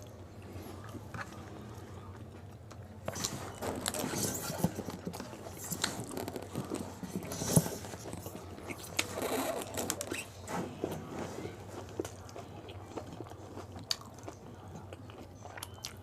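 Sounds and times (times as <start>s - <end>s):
wet chewing: 11.7s - 16.0s.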